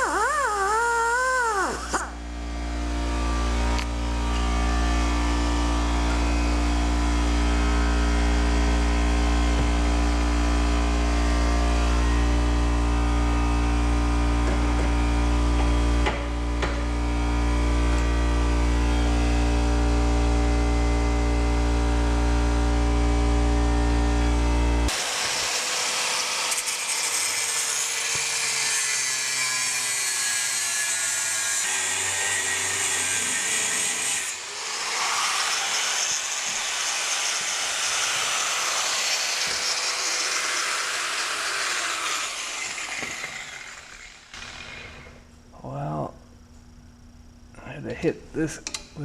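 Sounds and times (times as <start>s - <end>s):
power tool grinding metal: 0.0s - 2.2s, 24.9s - 45.1s.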